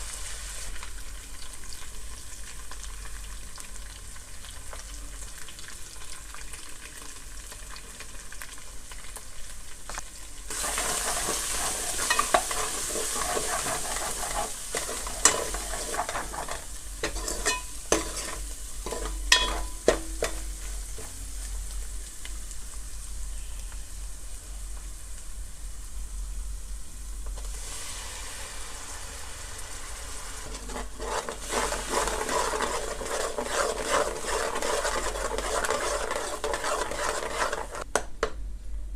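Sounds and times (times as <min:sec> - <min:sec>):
curry sizzling in a pan: 0:00.0 - 0:37.9
spoon clinking against pan: 0:17.0 - 0:20.4.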